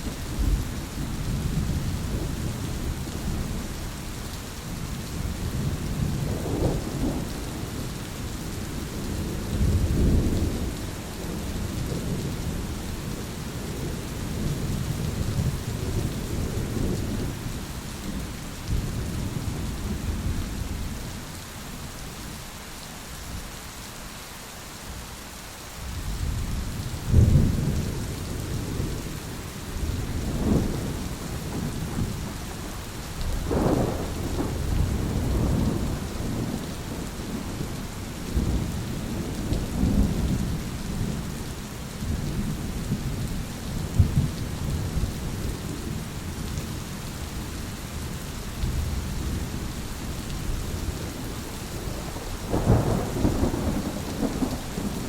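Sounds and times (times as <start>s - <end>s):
steady rain: 0.0s - 55.0s
rolling thunder: 29.8s - 32.4s, 33.2s - 41.3s, 43.8s - 46.6s, 50.6s - 55.0s
thunder clap: 51.9s - 55.0s.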